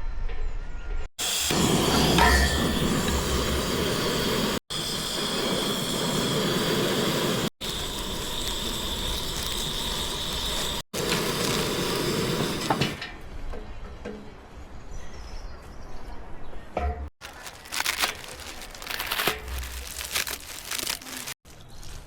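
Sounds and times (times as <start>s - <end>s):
gas stove burner hissing: 1.2s - 13.1s.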